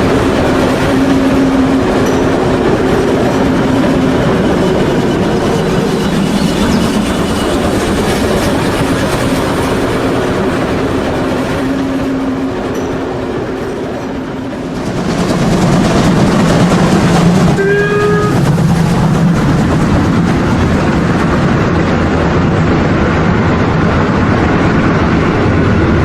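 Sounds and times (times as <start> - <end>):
train whistle: 0.0 - 14.9, 16.8 - 21.7
model train rolling: 0.0 - 24.8.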